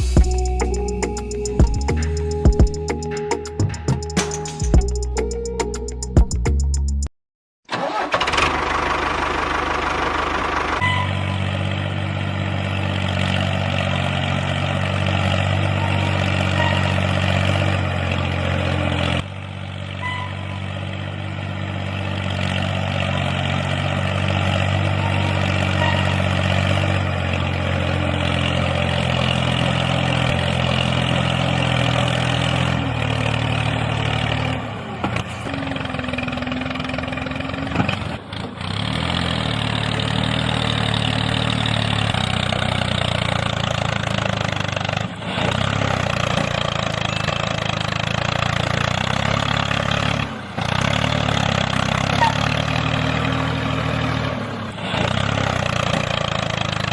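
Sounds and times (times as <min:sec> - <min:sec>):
engine starting and idling: 0:07.7 - 0:11.8.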